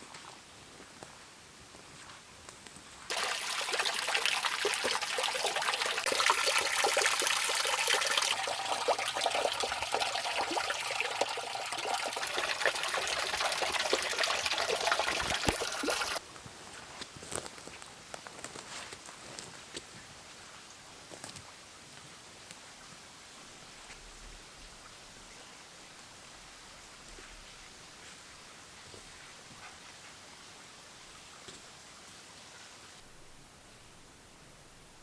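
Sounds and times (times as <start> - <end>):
water splashing and trickling: 3.1 - 16.2.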